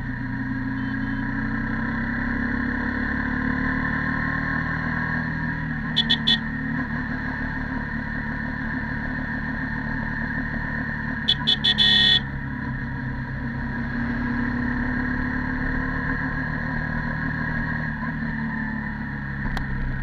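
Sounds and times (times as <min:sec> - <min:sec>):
motorcycle engine cruising: 0:00.0 - 0:20.0
vehicle horn beeping: 0:00.7 - 0:01.4, 0:05.9 - 0:06.6, 0:11.2 - 0:12.4.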